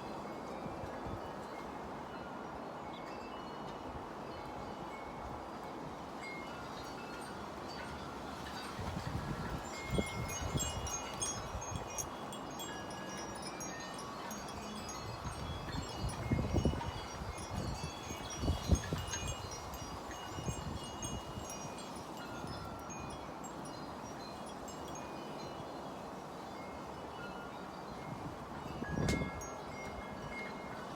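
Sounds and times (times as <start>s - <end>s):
wind chimes ringing: 0.0s - 30.9s
wind rumbling on microphone: 8.5s - 12.4s, 14.0s - 23.2s, 28.0s - 30.4s.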